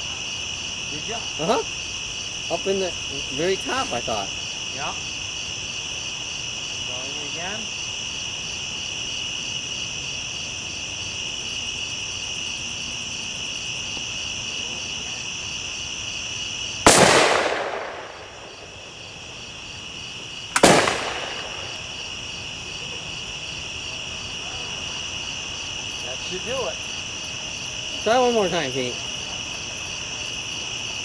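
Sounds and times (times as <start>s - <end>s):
crickets chirring: 0.0s - 31.0s
sharp gas explosion bangs: 16.9s - 18.8s, 20.6s - 21.9s.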